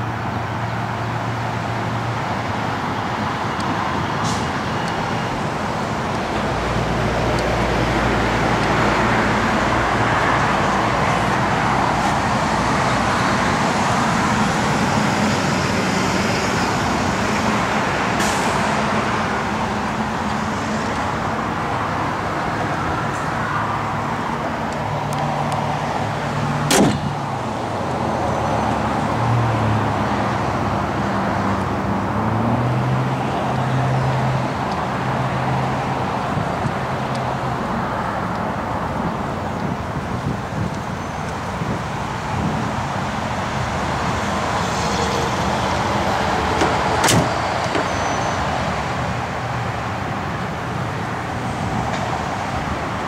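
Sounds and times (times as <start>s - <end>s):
sharp click: 26.7s - 27.1s, 46.6s - 47.9s.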